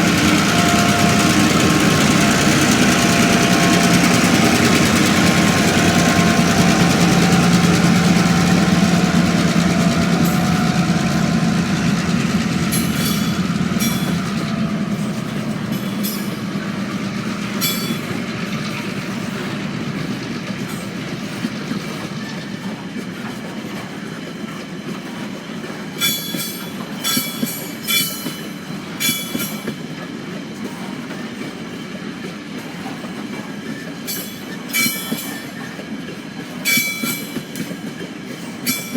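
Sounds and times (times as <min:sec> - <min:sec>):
diesel locomotive engine hum: 0:00.0 - 0:38.9
train wheels rumbling and clattering: 0:00.0 - 0:38.9
high-pitched wheel squeals: 0:17.5 - 0:18.2.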